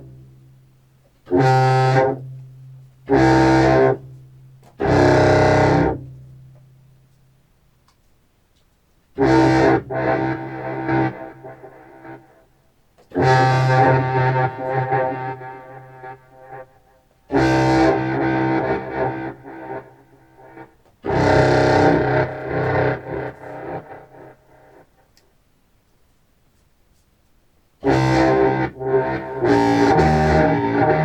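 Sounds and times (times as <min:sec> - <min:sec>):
distorted clarinet notes with delay: 0:01.3 - 0:02.2, 0:04.8 - 0:06.1, 0:09.2 - 0:25.0, 0:27.8 - 0:31.0.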